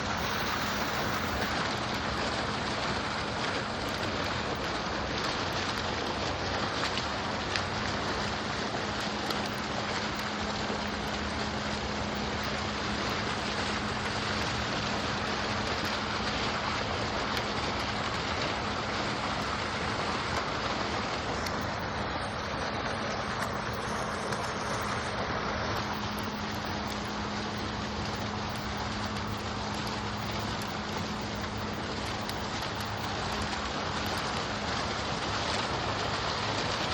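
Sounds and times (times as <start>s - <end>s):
low hum: 0.0s - 1.8s, 10.1s - 34.4s
water fountain splashing: 0.0s - 36.9s.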